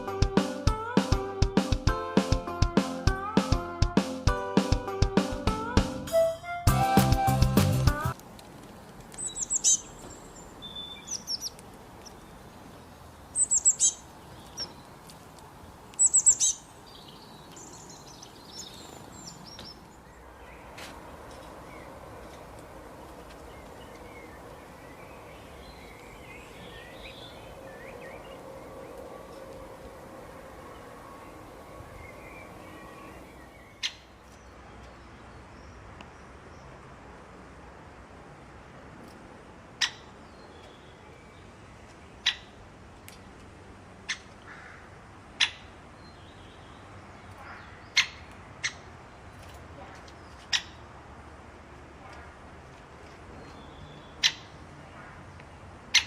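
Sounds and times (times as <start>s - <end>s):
steady background hiss: 8.1s - 34.2s
faint bird chirps: 9.2s - 12.3s, 13.4s - 14.8s
bird chip calls: 9.2s - 12.4s, 13.3s - 14.9s, 16.0s - 19.8s, 47.3s - 48.9s, 50.4s - 50.8s, 54.1s - 54.5s
low hum: 21.1s - 33.5s.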